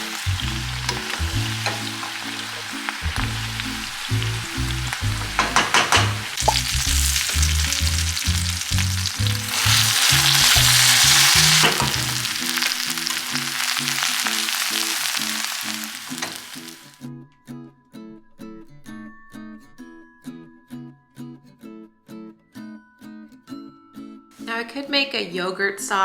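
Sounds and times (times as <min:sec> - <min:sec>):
clattering stirs: 0:00.0 - 0:13.4
vegetables sizzling in oil: 0:00.0 - 0:17.0.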